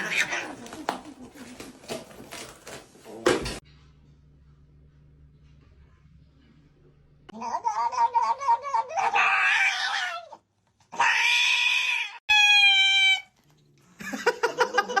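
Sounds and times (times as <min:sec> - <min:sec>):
cat yowling: 0:07.4 - 0:13.3.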